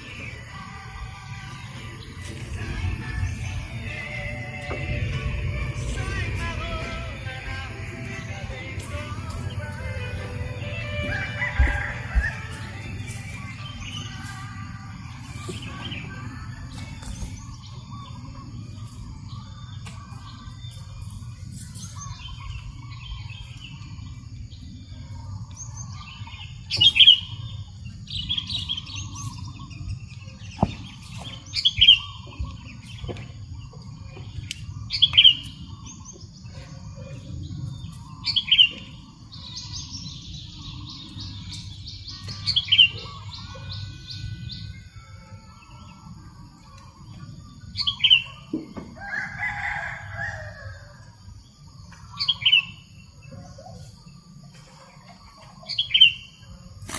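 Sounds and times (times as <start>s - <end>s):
buzzy bird trill: 39.3s - 50.6s.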